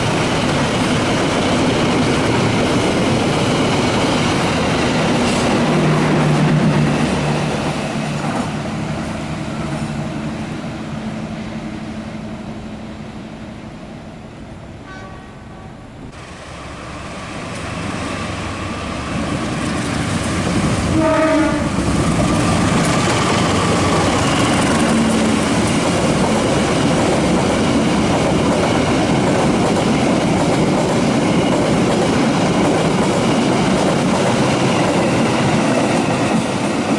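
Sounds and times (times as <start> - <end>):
train rumbling past on rails: 0.0 - 36.9
train horn: 14.8 - 15.9, 20.9 - 21.9.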